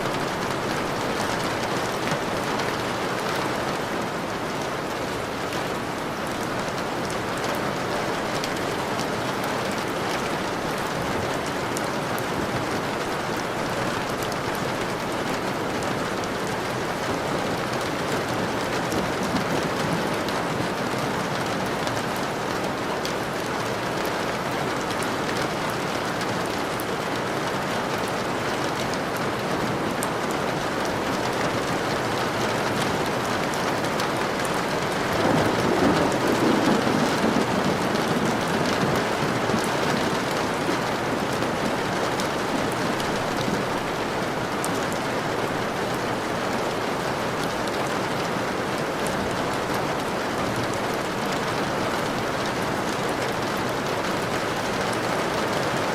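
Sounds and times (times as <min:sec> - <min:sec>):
steady rain falling: 0:00.0 - 0:55.9
low rumble of thunder: 0:34.8 - 0:43.7.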